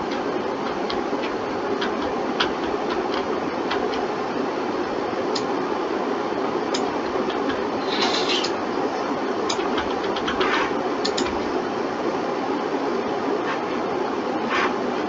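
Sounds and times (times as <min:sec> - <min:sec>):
background hiss and hum: 0:00.0 - 0:15.0
computer mouse clicks: 0:09.5 - 0:11.4.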